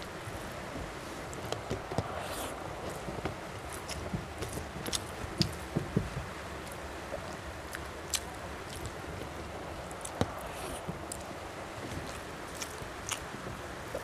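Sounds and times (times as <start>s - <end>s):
steady background hiss: 0.0s - 14.0s
wet chewing: 1.3s - 14.0s
lip smacks and clicks: 6.6s - 9.3s.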